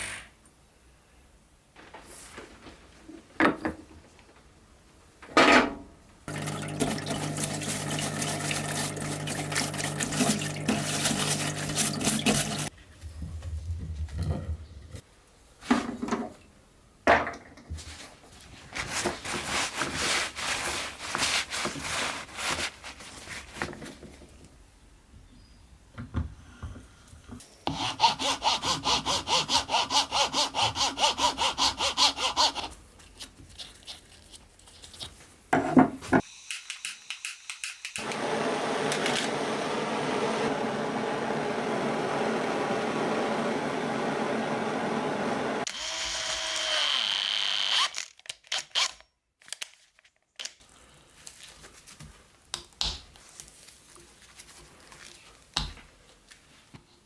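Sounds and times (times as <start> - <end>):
sawing or filing strokes: 7.4 - 12.7, 27.7 - 32.8
small power tool running: 45.6 - 47.9.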